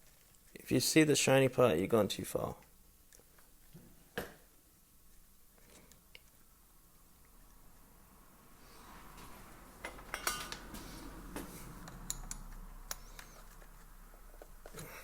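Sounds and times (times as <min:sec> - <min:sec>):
metal tools clicking and clinking: 0:09.9 - 0:10.6.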